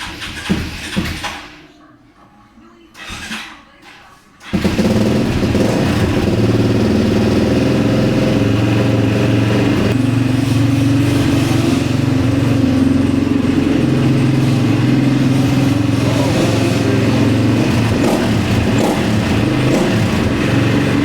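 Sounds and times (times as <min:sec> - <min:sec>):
motorcycle engine running: 0:04.4 - 0:21.0.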